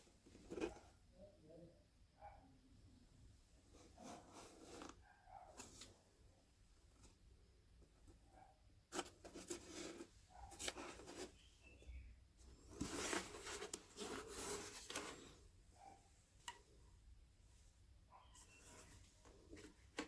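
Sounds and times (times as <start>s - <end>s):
cardboard scratching and rustling: 8.9s - 11.5s, 12.5s - 15.4s.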